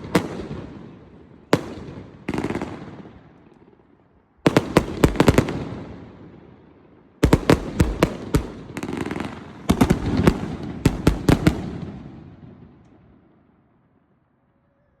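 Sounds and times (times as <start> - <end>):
fireworks bangs: 4.5 - 6.5, 7.2 - 13.1.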